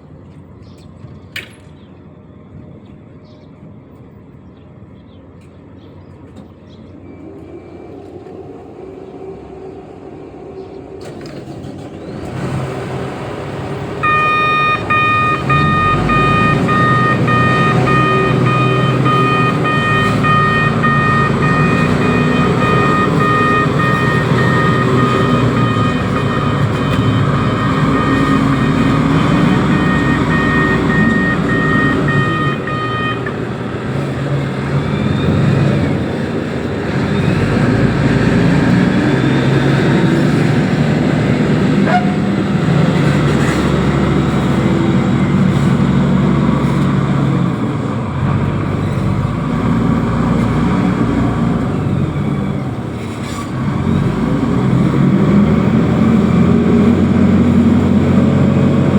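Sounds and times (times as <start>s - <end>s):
heavy diesel engine working: 5.6s - 58.9s
warning beeper pulses: 14.0s - 33.7s.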